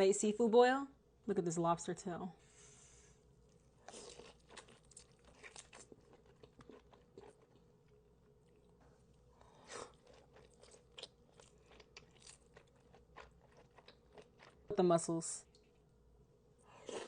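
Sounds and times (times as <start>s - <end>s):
chewing seafood: 3.8s - 14.7s.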